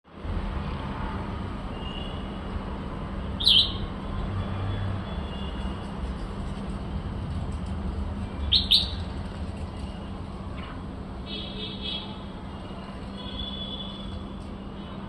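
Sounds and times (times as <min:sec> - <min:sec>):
bulbul calling: 0:03.4 - 0:03.8, 0:08.5 - 0:09.0.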